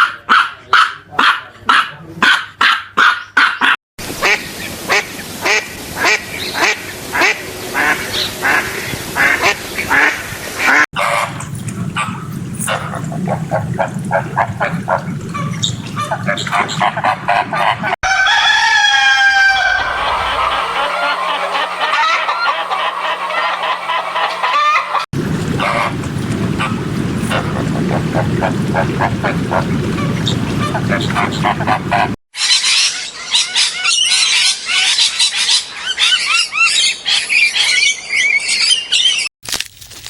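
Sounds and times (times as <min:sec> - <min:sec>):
waterfowl honking and quacking: 0:03.0 - 0:32.9.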